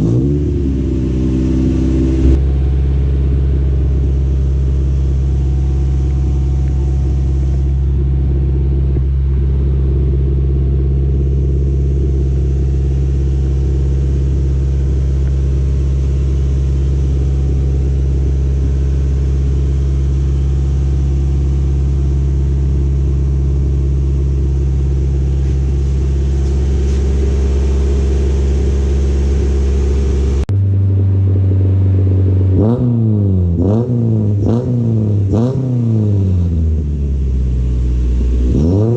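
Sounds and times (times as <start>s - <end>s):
engine revving: 0.0s - 2.8s, 24.3s - 38.9s
car engine idling: 0.0s - 38.9s.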